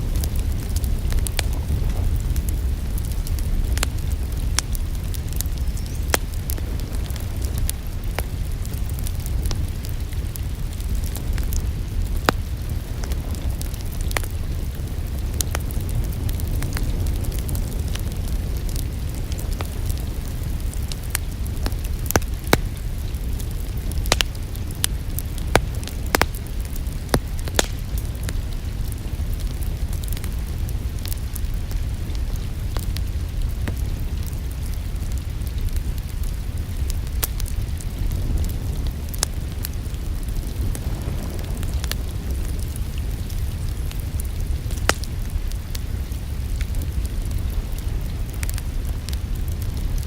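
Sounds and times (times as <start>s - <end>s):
wood fire crackling and popping: 0.0s - 50.0s
low rumble: 30.2s - 50.0s.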